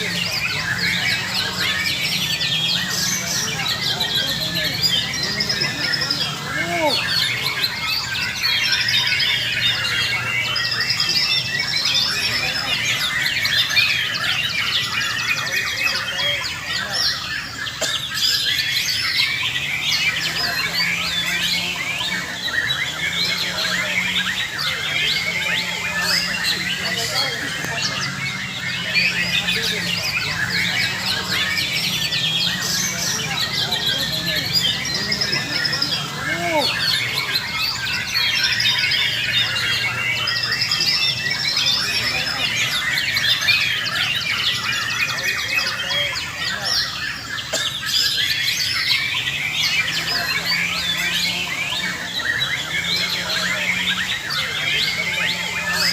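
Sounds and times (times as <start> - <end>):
birds singing in chorus: 0.0 - 55.9.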